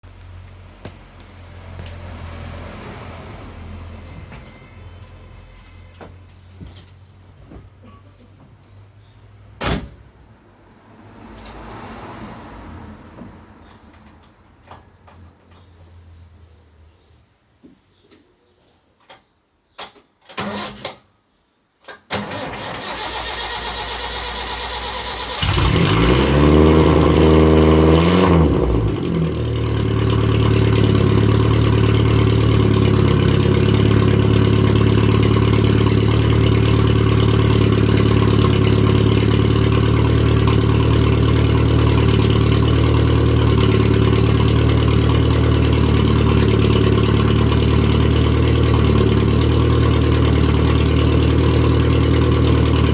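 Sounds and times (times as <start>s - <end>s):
car engine cranking and idling: 22.2s - 52.9s.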